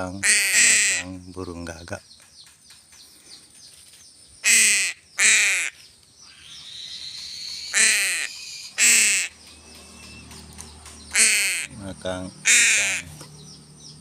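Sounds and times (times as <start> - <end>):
crow cawing: 0.2 - 1.1, 4.4 - 9.4, 11.1 - 11.7, 12.4 - 13.2.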